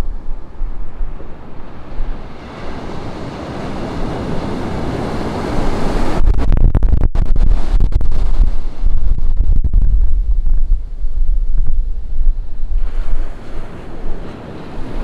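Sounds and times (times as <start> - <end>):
ocean waves washing on beach: 0.0 - 6.4, 10.4 - 15.0
wind buffeting microphone: 0.0 - 15.0.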